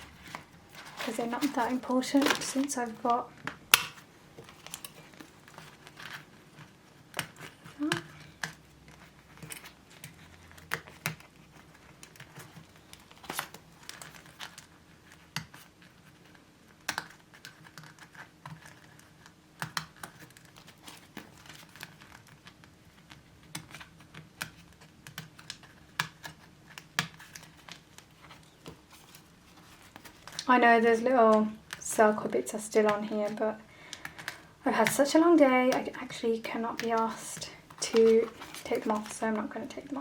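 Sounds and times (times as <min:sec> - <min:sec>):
plastic wallets clicking and crinkling: 0:00.0 - 0:30.5, 0:32.8 - 0:40.0.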